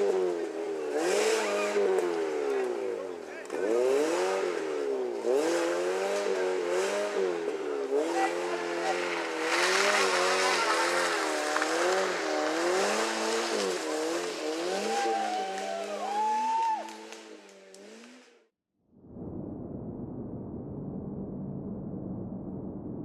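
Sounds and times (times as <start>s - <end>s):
rally car engine revving: 0.0s - 18.5s
rush of noise: 19.0s - 23.0s.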